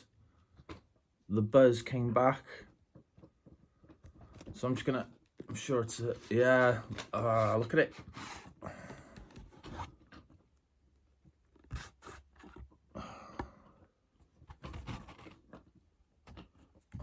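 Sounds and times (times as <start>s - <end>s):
cardboard box rustling and scraping: 9.4s - 10.3s, 11.5s - 12.8s, 14.4s - 15.7s.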